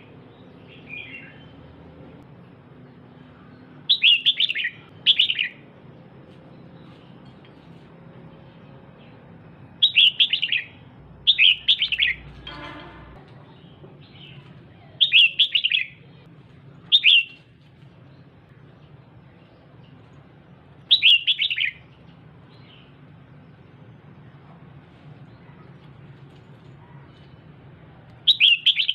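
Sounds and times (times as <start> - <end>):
bird chirping rapidly: 3.9 - 5.6, 9.8 - 12.3, 15.0 - 16.0, 20.9 - 21.8, 28.2 - 28.9.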